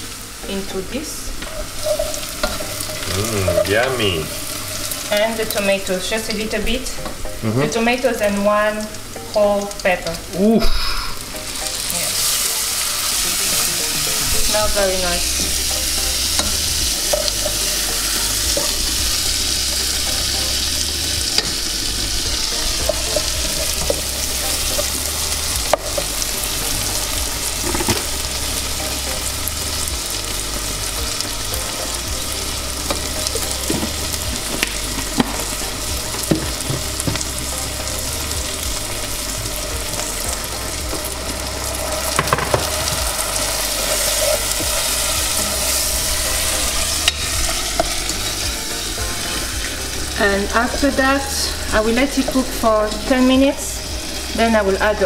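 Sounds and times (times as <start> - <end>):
food sizzling in oil: 0.0 - 55.0.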